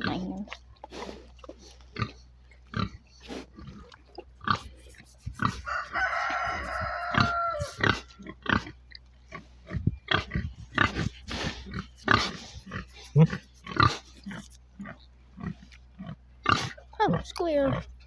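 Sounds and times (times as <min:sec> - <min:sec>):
pig grunting: 0:00.0 - 0:17.9
pig squealing: 0:04.5 - 0:08.7, 0:10.1 - 0:15.6.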